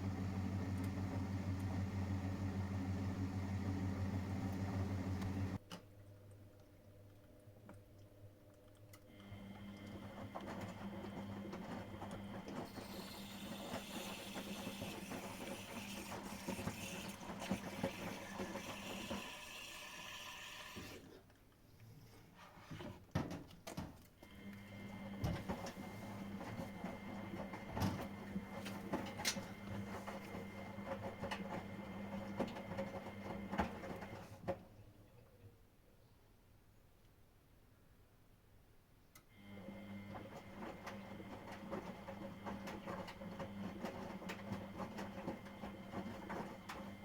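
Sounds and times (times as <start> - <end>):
washing machine motor hum: 0.0 - 5.6, 9.1 - 21.0, 24.4 - 34.4, 39.4 - 47.0.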